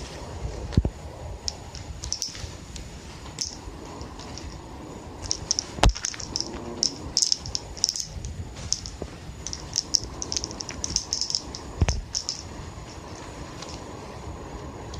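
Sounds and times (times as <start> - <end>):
toy ball rattling and clicking: 1.4 - 2.5, 3.3 - 4.6, 5.2 - 13.8.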